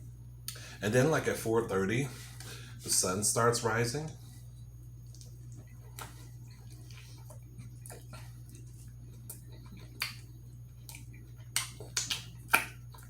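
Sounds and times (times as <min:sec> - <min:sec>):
low electrical hum: 0:00.0 - 0:13.0
wet mouth clicks and lip smacks: 0:05.1 - 0:13.0.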